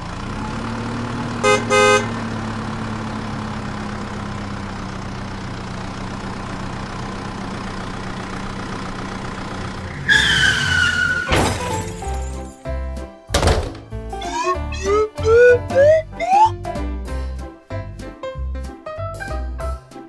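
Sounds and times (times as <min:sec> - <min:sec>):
plastic toy vehicles crashing: 0:11.0 - 0:12.6, 0:13.3 - 0:13.9
short horn-like beep: 0:14.2 - 0:16.5
engine idling sound effect: 0:14.2 - 0:16.6
high falling tone: 0:14.2 - 0:16.6.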